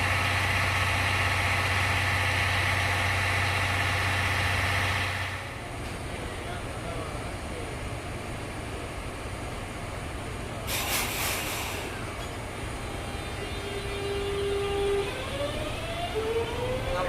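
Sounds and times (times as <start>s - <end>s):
train low rumble: 0.0s - 17.0s
air hiss: 10.6s - 12.1s
traction motors whining: 11.4s - 17.0s.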